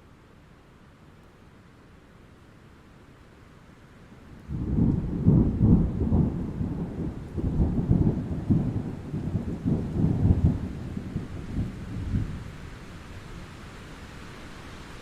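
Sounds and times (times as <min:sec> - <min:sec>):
rain: 0:00.0 - 0:15.0
thunder rumbling: 0:04.5 - 0:13.0.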